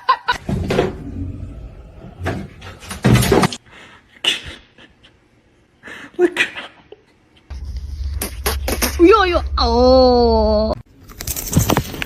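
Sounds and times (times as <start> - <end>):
low rumble: 7.5 - 10.8.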